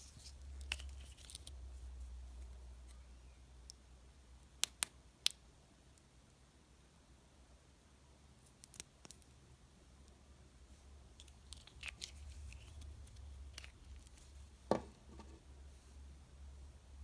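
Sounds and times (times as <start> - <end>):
knock: 14.7 - 15.3.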